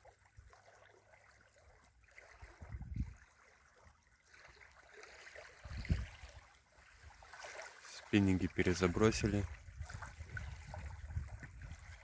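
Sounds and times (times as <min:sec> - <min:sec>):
lake water lapping at shore: 0:00.0 - 0:12.0
wind buffeting microphone: 0:02.4 - 0:03.3, 0:05.6 - 0:06.4, 0:08.6 - 0:12.0.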